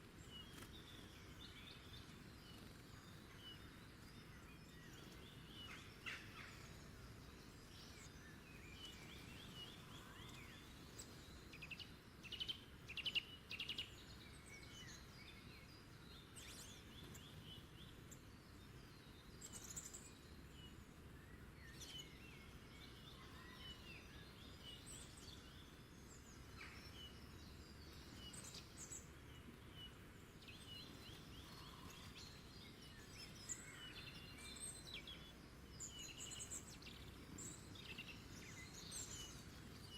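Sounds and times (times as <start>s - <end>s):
small birds chirping: 0.0s - 39.9s
soft background hiss: 0.0s - 39.9s.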